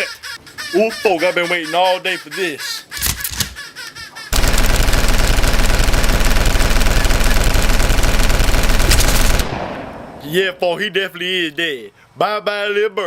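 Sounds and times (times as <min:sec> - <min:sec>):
automatic gunfire: 0:04.3 - 0:10.1.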